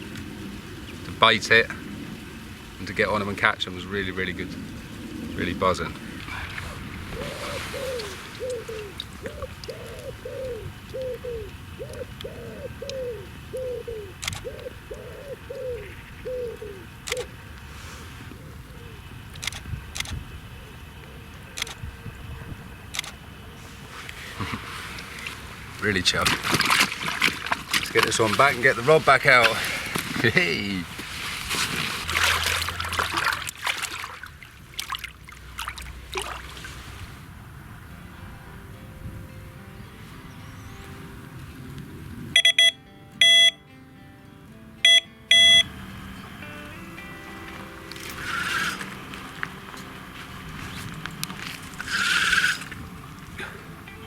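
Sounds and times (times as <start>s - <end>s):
water splashing: 0.0s - 9.8s, 24.0s - 37.3s, 47.6s - 53.8s
bird cooing: 6.3s - 17.5s, 18.2s - 19.3s, 20.4s - 22.6s, 47.7s - 50.9s, 51.5s - 54.0s
sharp clicks: 14.2s - 14.6s, 17.0s - 17.3s, 19.3s - 20.2s, 22.9s - 23.2s
water trickling: 25.0s - 36.7s.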